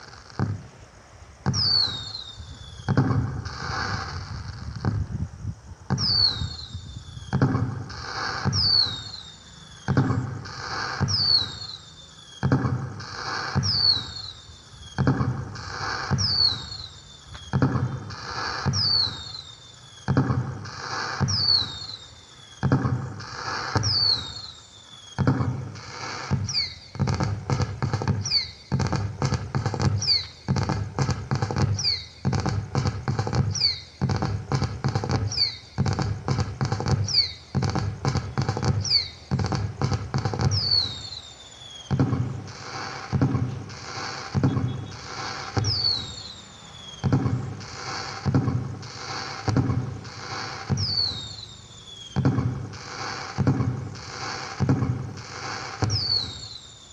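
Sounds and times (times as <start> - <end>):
firework crackling: 0.0 - 56.9
falling whistle: 1.5 - 4.0, 6.0 - 27.3, 28.1 - 28.8, 30.0 - 30.5, 31.7 - 32.4, 33.5 - 33.9, 35.2 - 35.9, 37.0 - 37.4, 38.4 - 39.2, 40.4 - 42.1, 44.3 - 48.2, 50.4 - 52.4, 55.8 - 56.9.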